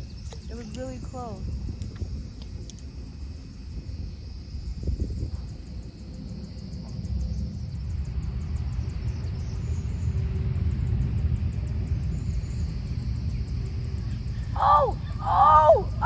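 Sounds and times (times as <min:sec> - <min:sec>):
insect ticking: 0:00.0 - 0:03.4, 0:08.5 - 0:16.0
low rumble: 0:07.1 - 0:16.0.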